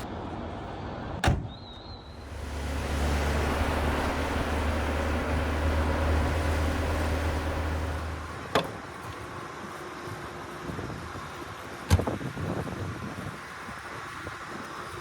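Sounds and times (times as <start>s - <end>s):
car engine droning: 2.1s - 9.1s.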